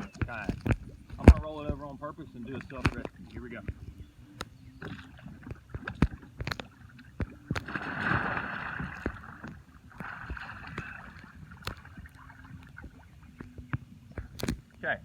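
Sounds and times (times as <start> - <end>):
water splashing and sloshing: 0.0 - 14.9.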